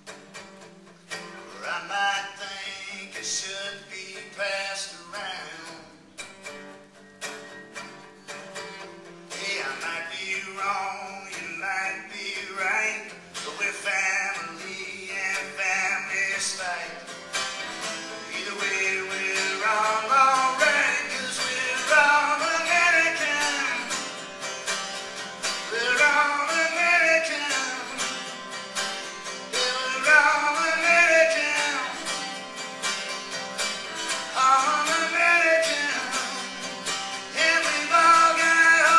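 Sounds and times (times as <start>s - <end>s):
plucked guitar: 0.0s - 38.9s
person singing: 1.5s - 6.0s, 9.4s - 17.1s, 18.1s - 24.1s, 25.6s - 28.3s, 29.5s - 32.4s, 34.0s - 38.9s.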